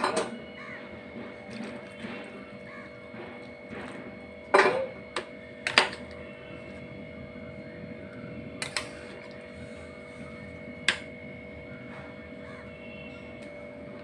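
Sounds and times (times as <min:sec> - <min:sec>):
utensils clinking against pot: 0:00.0 - 0:00.4, 0:03.7 - 0:06.2
steady background hum: 0:00.0 - 0:14.0.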